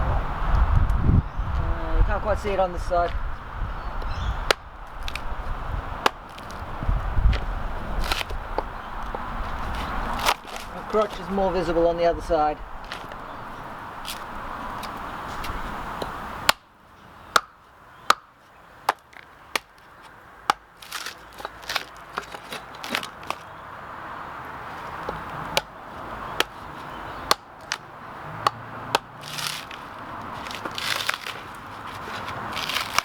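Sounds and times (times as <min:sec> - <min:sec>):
tool chopping into wood: 0:04.0 - 0:05.3, 0:06.0 - 0:06.6, 0:07.3 - 0:09.2, 0:09.8 - 0:11.4, 0:16.0 - 0:16.6, 0:17.3 - 0:18.3, 0:18.9 - 0:19.7, 0:20.4 - 0:23.4, 0:25.0 - 0:25.7, 0:26.4 - 0:26.6, 0:27.2 - 0:27.8, 0:28.4 - 0:33.0.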